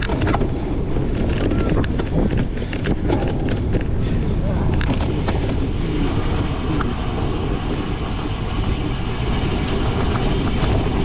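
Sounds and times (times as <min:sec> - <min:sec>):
bike rolling over rough ground: 0:00.0 - 0:11.0
wind buffeting microphone: 0:00.0 - 0:11.0.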